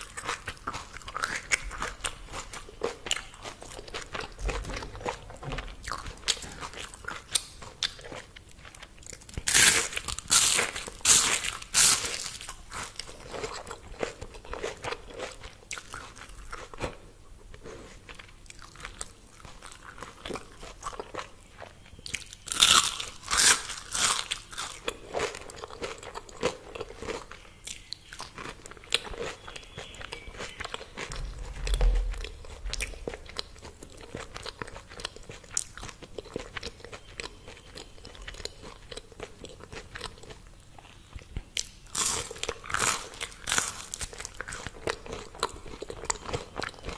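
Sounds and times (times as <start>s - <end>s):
crunchy chewing of fried food: 0.0s - 46.9s
dull low thump: 31.1s - 33.4s.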